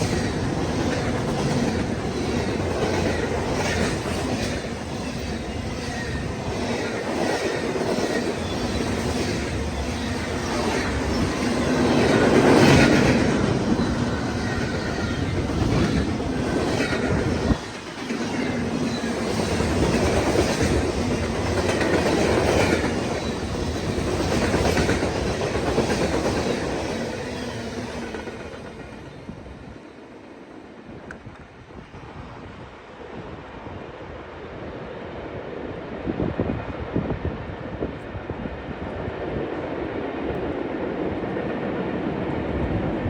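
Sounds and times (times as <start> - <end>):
freight train wheels clacking: 0.0 - 29.6.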